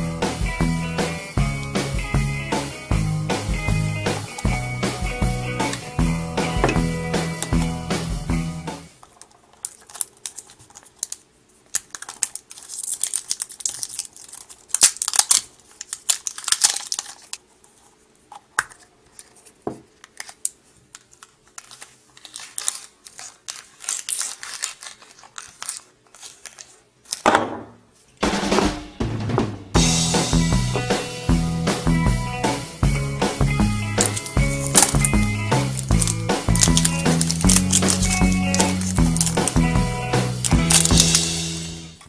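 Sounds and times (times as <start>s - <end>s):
crinkling and rustling: 8.9s - 28.2s, 34.0s - 41.4s.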